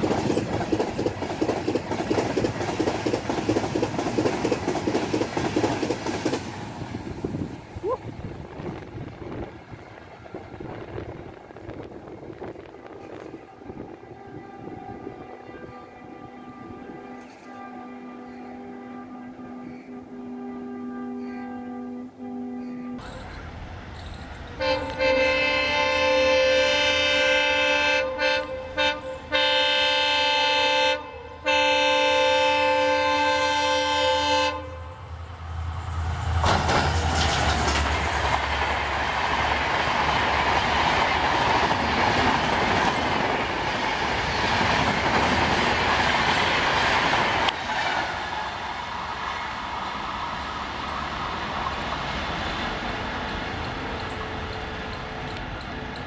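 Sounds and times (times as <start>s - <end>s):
train rushing past: 0.0s - 17.3s, 23.0s - 56.0s
locomotive air horn blasts: 12.8s - 23.4s, 24.5s - 35.1s.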